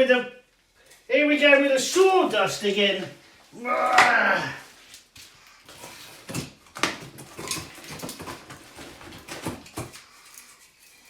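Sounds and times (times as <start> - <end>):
demolition knocks scrapes and rustling: 5.3 - 10.8.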